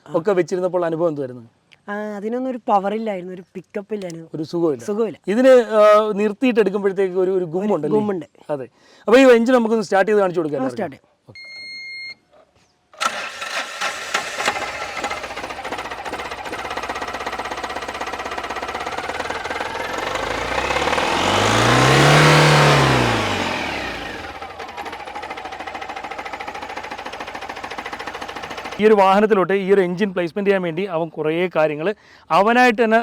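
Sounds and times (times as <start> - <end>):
diesel engine revving: 13.0 - 28.9
diesel engine starting and idling: 13.0 - 29.2.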